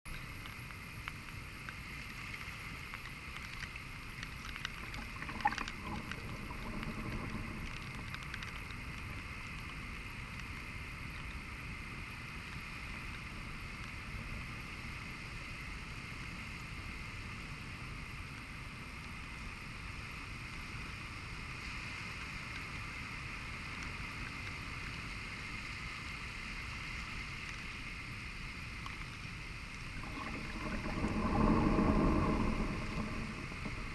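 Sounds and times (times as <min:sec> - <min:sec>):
surf washing on beach: 0:29.8 - 0:33.9.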